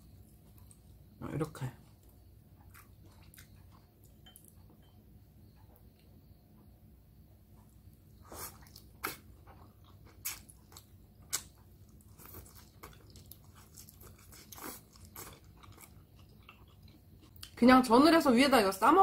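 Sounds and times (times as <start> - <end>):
crunchy chewing of herbs: 1.9 - 4.4, 8.1 - 17.6.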